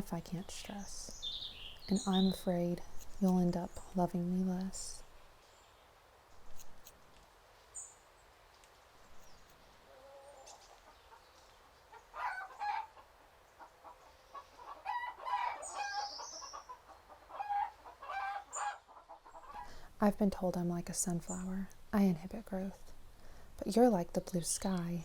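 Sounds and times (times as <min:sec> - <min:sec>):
chickens clucking: 0:09.8 - 0:19.7
high chirping call: 0:15.6 - 0:16.8.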